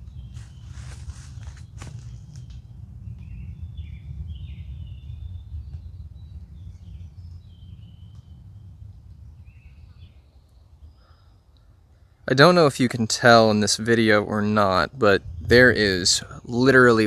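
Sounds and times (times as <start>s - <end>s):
birds chirping and whistling: 0.0s - 8.7s, 9.4s - 11.4s
steady low rumble: 0.0s - 17.0s.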